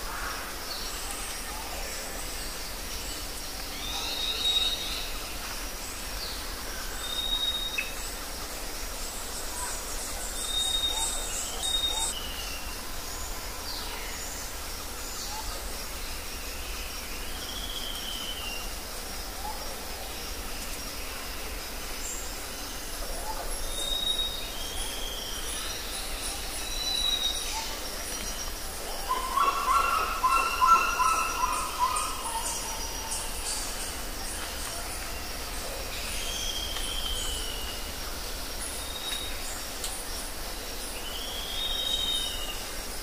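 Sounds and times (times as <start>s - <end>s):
steady background hiss: 0.0s - 43.0s
warbling bird call: 29.0s - 33.2s.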